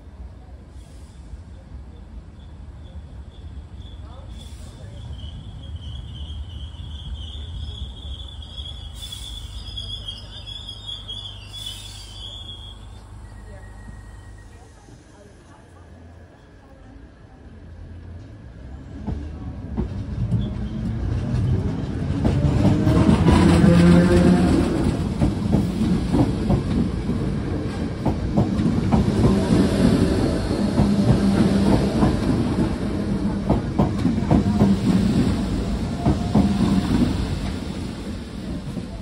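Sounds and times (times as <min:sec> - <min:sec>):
electric train passing at speed: 0:00.0 - 0:39.0.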